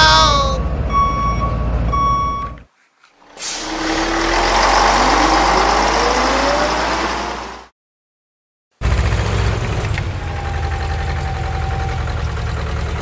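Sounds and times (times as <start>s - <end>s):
vehicle engine revving: 3.2s - 7.7s, 8.8s - 13.0s.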